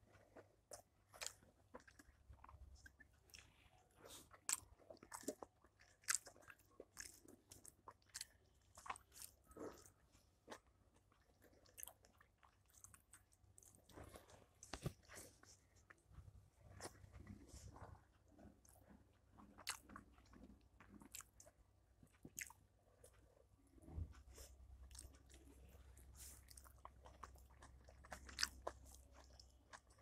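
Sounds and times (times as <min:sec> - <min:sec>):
chewing with clicks and smacks: 0:00.0 - 0:30.0.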